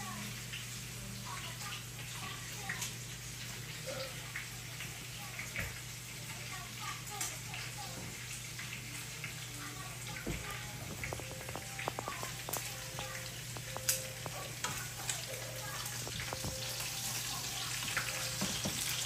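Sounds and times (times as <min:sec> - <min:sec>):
food sizzling in a pan: 0:00.0 - 0:19.0
crackles and pops: 0:10.1 - 0:17.2.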